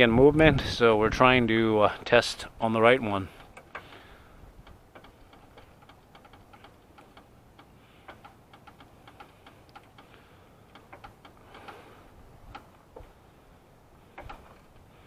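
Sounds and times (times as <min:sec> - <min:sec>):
car jack clicking: 0:03.4 - 0:13.1, 0:14.1 - 0:14.7.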